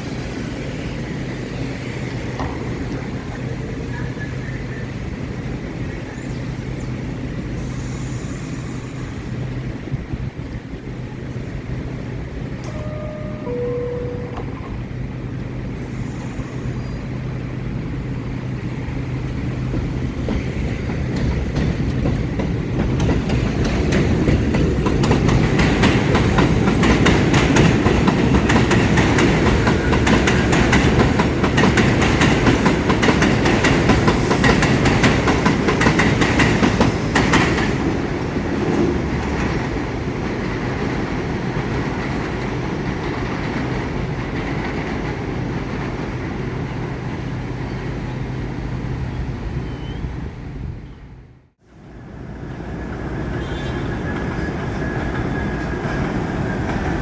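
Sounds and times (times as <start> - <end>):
subway train rumbling past: 0.0 - 57.0
wheels clacking over rail joints: 17.6 - 46.5.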